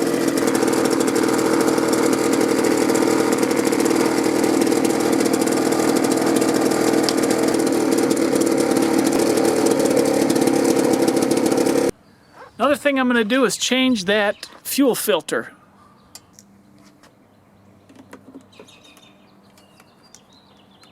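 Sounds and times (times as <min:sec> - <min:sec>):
leaf blower engine running: 0:00.0 - 0:12.0.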